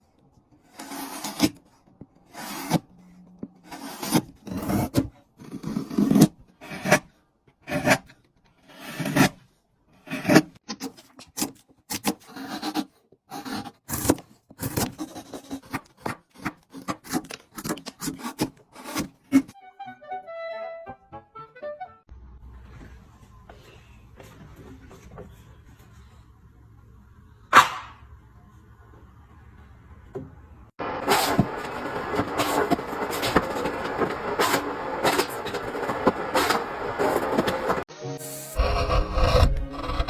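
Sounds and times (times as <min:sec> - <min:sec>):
saw cutting wooden board: 0:00.7 - 0:01.6, 0:02.3 - 0:09.4, 0:10.0 - 0:19.6, 0:30.8 - 0:40.0.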